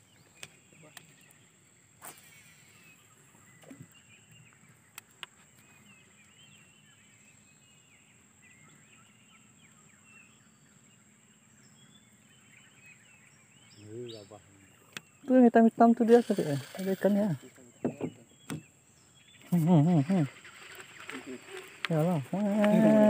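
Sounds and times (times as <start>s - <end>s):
faint bird chirps: 0.0s - 23.0s.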